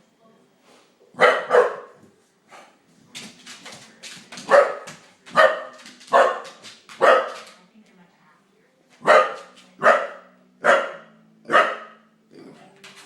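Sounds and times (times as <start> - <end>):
dog barking: 1.2 - 2.0, 4.4 - 7.5, 9.0 - 12.1.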